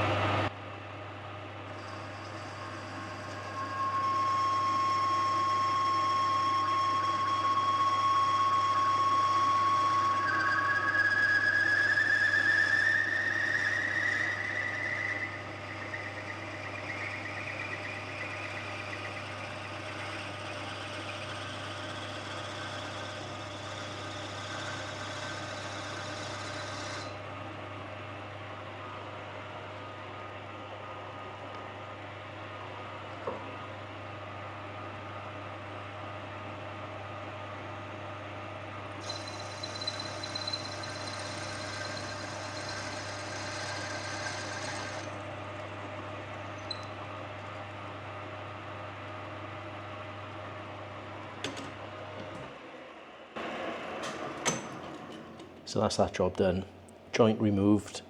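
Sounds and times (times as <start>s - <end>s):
power drill whining: 39.0s - 45.2s, 53.4s - 55.8s.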